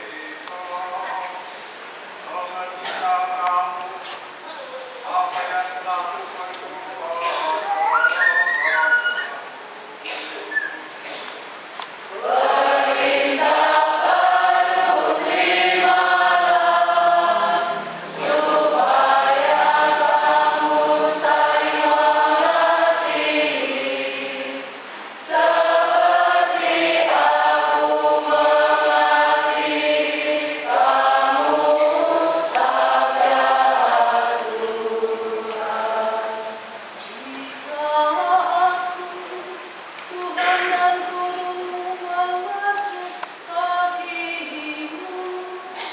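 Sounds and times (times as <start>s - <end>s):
choir singing a hymn: 12.1s - 45.9s.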